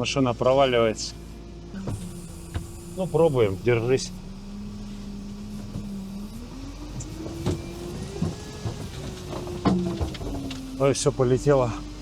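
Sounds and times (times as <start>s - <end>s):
all-terrain vehicle engine revving: 0.0s - 12.0s
knocks and thumps: 6.9s - 10.8s.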